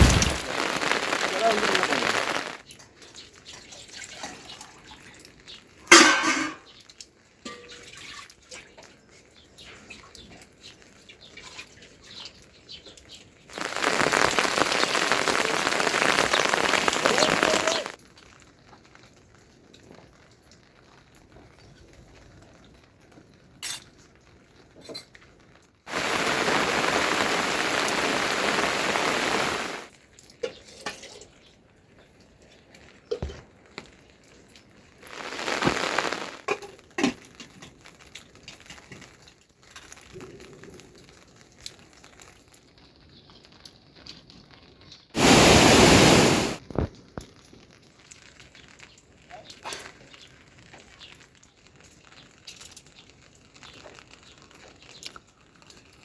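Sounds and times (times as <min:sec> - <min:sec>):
heavy rain falling: 0:00.0 - 0:02.7, 0:13.5 - 0:18.6, 0:25.9 - 0:29.9, 0:34.1 - 0:42.4, 0:45.2 - 0:46.9.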